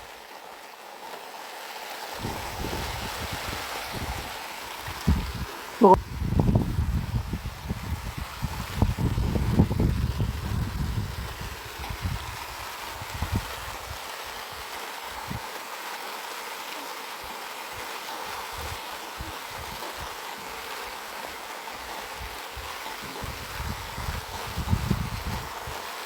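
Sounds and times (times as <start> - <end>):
rain hissing: 1.2 - 26.0
wind buffeting microphone: 2.2 - 14.0, 22.2 - 25.8.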